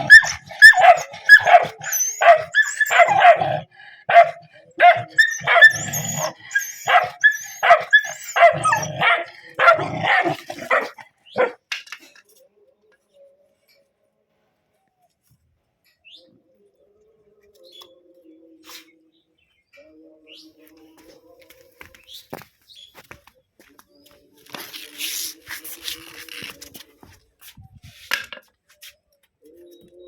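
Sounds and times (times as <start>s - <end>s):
dog barking rapidly: 0.0s - 11.6s.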